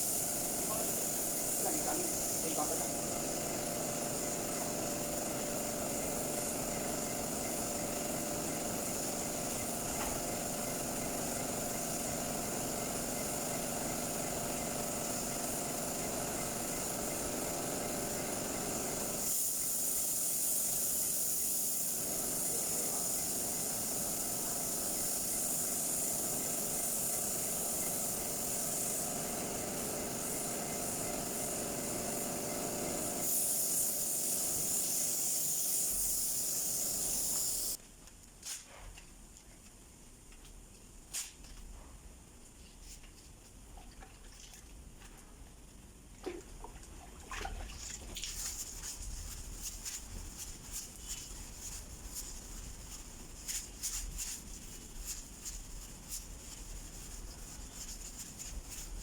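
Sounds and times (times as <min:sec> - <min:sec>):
compressed air hissing: 0:00.0 - 0:37.8.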